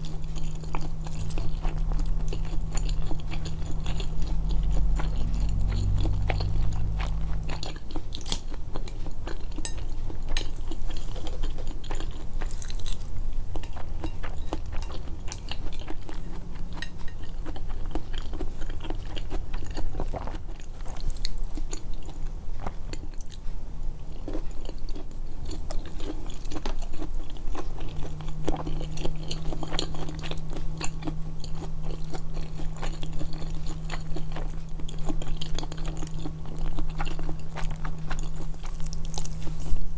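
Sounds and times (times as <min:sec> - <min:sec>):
chewing and crunching food: 0:00.0 - 0:39.9
faint low hum: 0:00.0 - 0:39.9.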